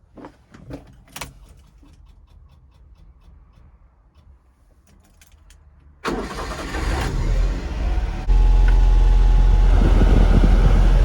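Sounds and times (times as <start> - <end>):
engine running: 6.1 - 11.0.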